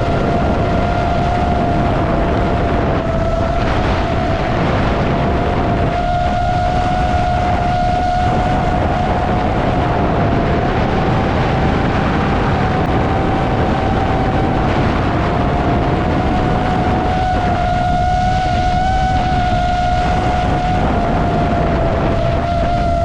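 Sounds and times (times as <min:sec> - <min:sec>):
quadcopter motors whining: 0:00.0 - 0:23.0
rush of air: 0:00.0 - 0:23.0.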